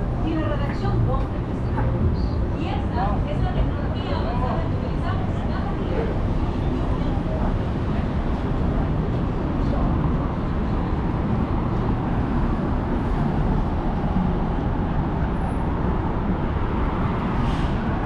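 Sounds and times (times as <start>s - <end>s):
city traffic rumble: 0.0s - 18.0s.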